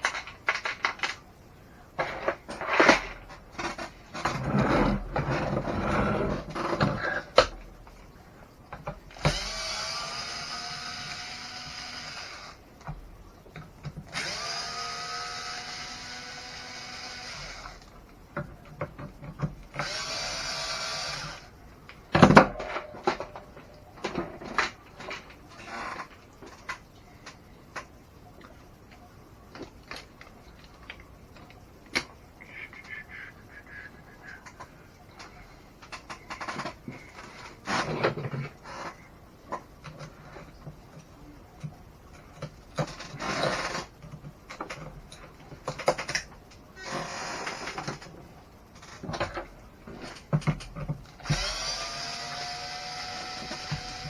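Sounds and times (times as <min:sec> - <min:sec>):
electric screwdriver whirring: 0:09.2 - 0:12.6, 0:14.1 - 0:17.8, 0:19.8 - 0:21.5, 0:51.2 - 0:54.0.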